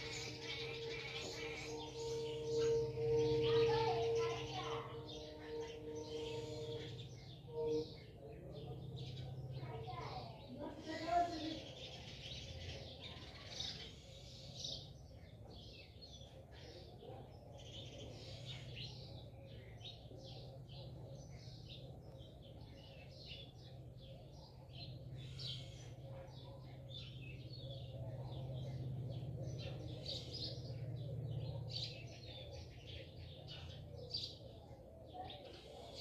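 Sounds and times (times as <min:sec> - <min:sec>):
low steady hum: 0:00.0 - 0:10.4
small birds chirping: 0:00.0 - 0:36.0.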